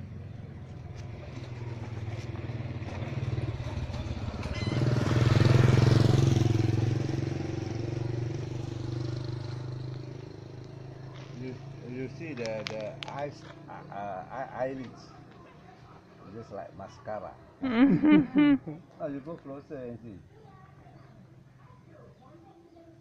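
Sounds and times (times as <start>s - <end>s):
small motor engine passing: 0.0s - 15.8s.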